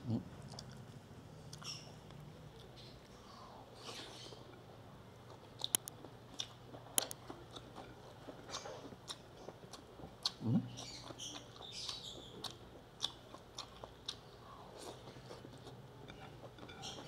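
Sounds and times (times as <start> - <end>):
chewing and wet mouth clicks: 0.5 - 0.8, 5.3 - 14.2.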